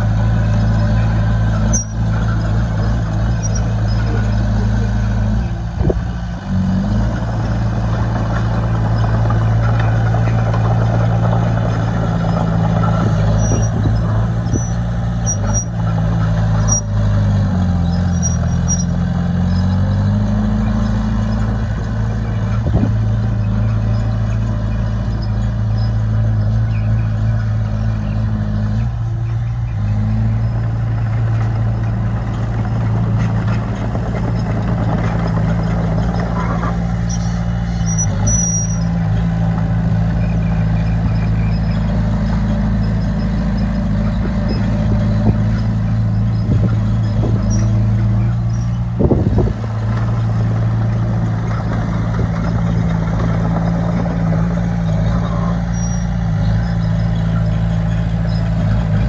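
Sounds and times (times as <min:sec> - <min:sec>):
diesel engine running under load: 0:00.0 - 0:59.0
high squeal: 0:00.5 - 0:04.5, 0:08.2 - 0:17.0, 0:17.8 - 0:19.6, 0:36.0 - 0:39.0, 0:54.8 - 0:59.0.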